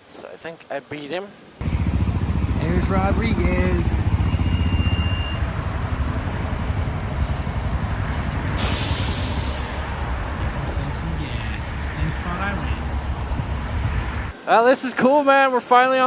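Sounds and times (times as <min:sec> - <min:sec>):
motorcycle engine rumbling: 0:01.6 - 0:14.3
short hiss: 0:08.6 - 0:10.0.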